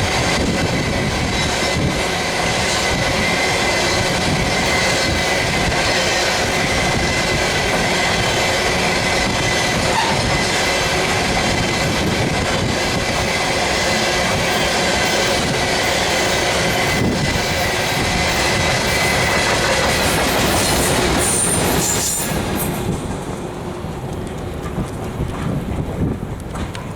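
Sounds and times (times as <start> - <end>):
steel wheels on rail: 0.0 - 26.9.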